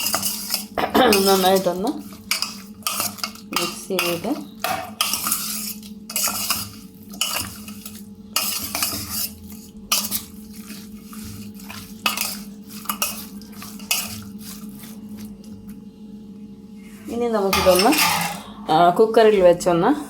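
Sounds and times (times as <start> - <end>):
spoon scraping in a vessel: 0.0 - 15.3.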